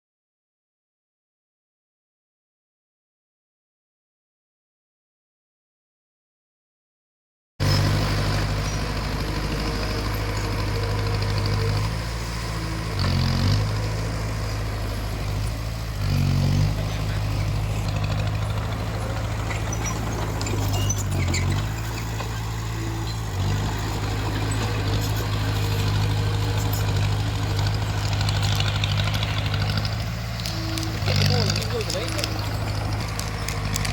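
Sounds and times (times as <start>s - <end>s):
bulldozer diesel engine revving: 7.6s - 33.9s.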